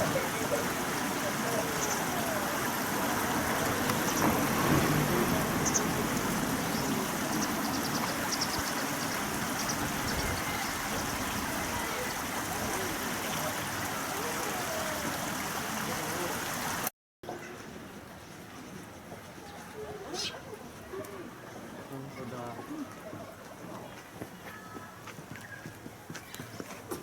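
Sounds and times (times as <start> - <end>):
river water rushing: 0.0 - 16.9
small birds chirping: 0.1 - 12.3, 18.5 - 20.5.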